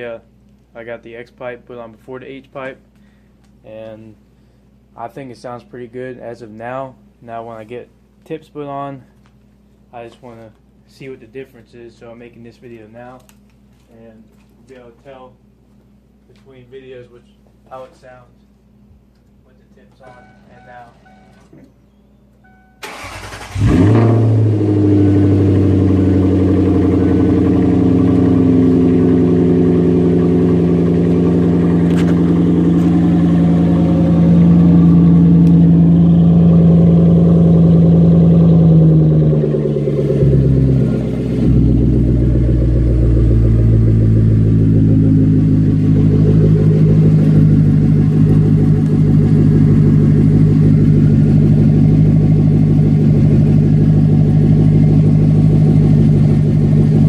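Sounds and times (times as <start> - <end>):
car engine cranking and starting: 22.8 - 57.0
car engine idling: 22.8 - 57.0.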